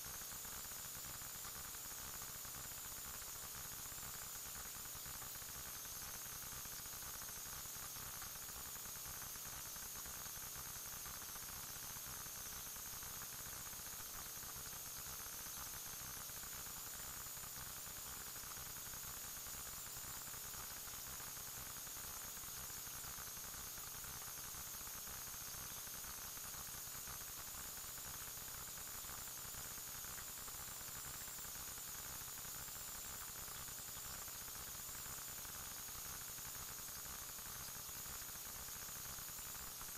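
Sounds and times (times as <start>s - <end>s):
electronic static hiss: 0.0s - 39.9s.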